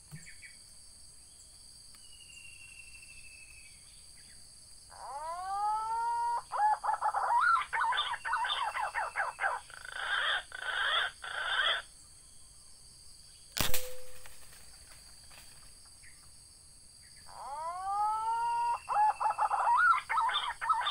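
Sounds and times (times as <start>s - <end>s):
harsh rasping bird calls: 4.9s - 11.9s, 17.2s - 20.9s
bird whistling and warbling: 5.0s - 11.8s, 17.4s - 20.9s
sharp crack: 13.6s - 14.8s.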